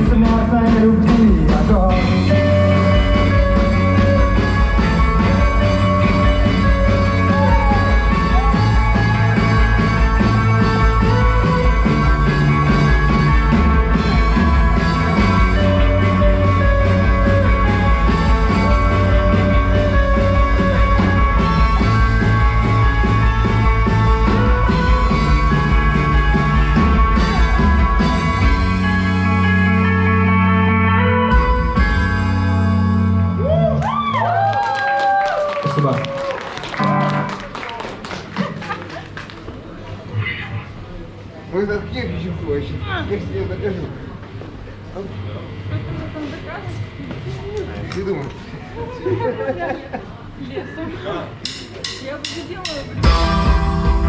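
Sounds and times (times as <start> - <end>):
steady beat: 0.0 - 29.7, 51.3 - 54.0
strong bass line: 0.0 - 34.2, 53.0 - 54.0
band playing live: 0.0 - 35.4, 36.2 - 38.6, 51.3 - 54.0.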